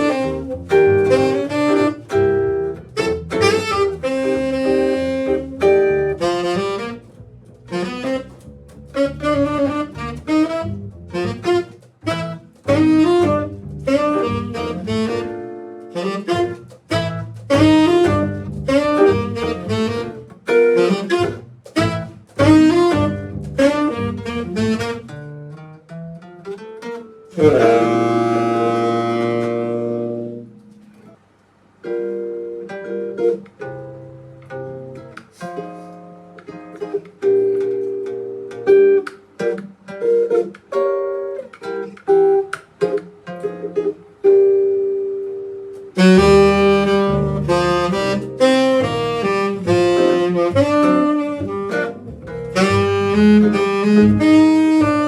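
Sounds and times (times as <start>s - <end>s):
band playing: 0.0s - 25.2s, 27.4s - 30.3s, 45.9s - 55.0s
saxophone: 0.0s - 25.6s, 27.3s - 30.9s, 45.7s - 55.0s
guitar picked notes: 0.0s - 31.2s, 31.8s - 55.0s.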